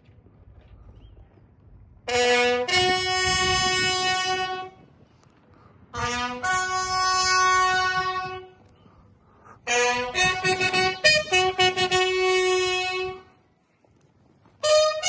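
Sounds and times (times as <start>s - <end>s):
bugle call: 2.1s - 4.8s, 6.0s - 8.7s, 9.5s - 13.4s, 14.6s - 15.0s.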